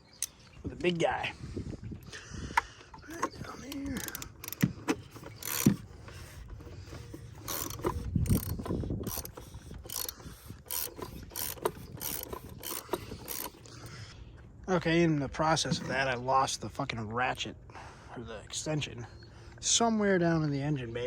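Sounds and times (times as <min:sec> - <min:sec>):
hand ratchet clicking: 0:02.6 - 0:13.9.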